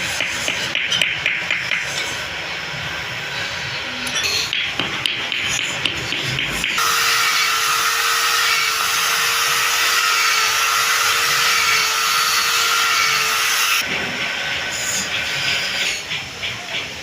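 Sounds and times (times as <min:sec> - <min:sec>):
scraping strokes on wood: 0:00.0 - 0:02.3
woodworking power tool whine: 0:06.8 - 0:16.1.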